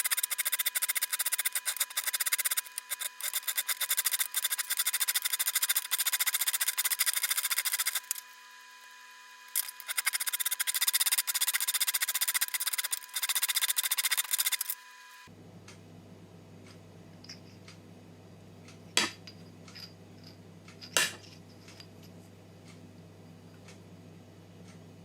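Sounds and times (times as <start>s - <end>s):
tool rasping on hard surface: 0.0s - 8.2s.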